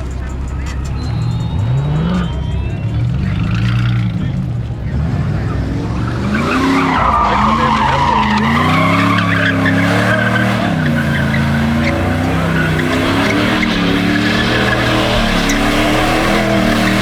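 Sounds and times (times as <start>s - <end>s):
car engine revving: 0.0s - 17.0s
tire squeal: 0.0s - 17.0s.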